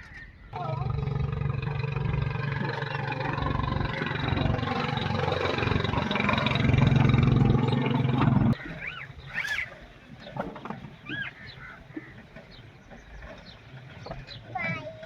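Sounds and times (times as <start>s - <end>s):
diesel engine running: 0.6s - 8.6s.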